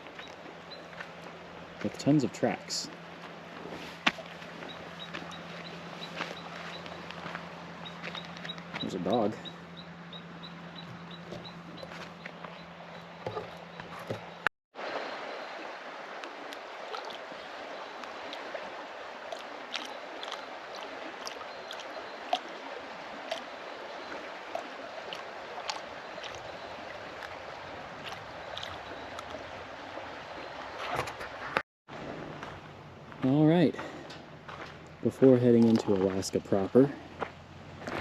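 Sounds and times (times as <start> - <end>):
water lapping along shoreline: 0.0 - 38.0
small splashes: 10.8 - 31.5.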